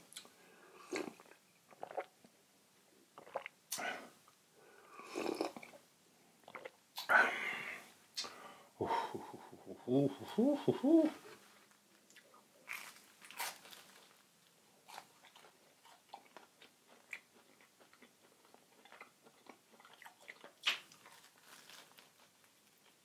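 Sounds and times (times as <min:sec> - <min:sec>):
person chewing and biting food: 0:14.8 - 0:23.0.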